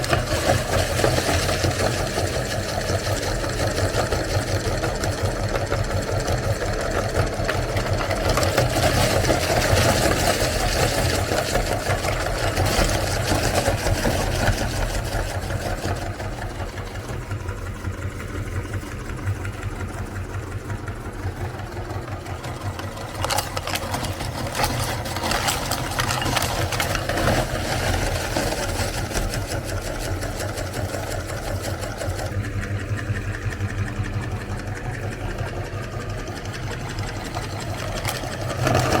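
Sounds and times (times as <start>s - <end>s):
cookies crunching in grinder: 0.0s - 16.8s, 22.4s - 32.4s, 37.2s - 39.0s
meat grinder motor hum: 0.0s - 39.0s.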